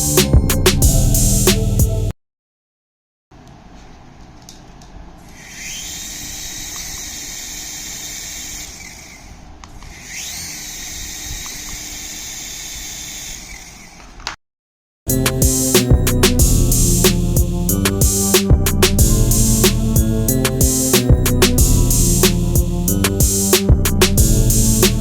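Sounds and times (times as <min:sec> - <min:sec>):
toy jet engine sound effect: 0:05.4 - 0:09.3.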